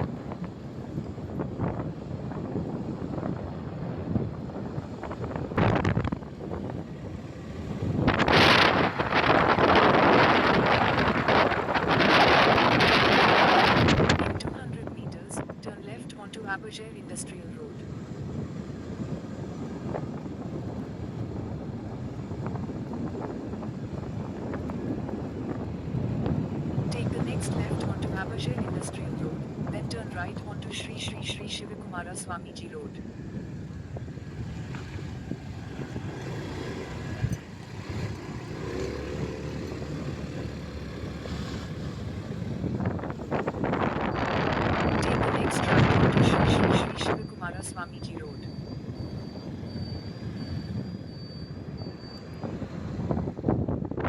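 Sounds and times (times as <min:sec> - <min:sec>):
wind on microphone: 0:00.0 - 0:16.8, 0:17.4 - 0:54.0
motorcycle road noise: 0:00.0 - 0:54.0
motorcycle engine rumble: 0:33.0 - 0:47.1.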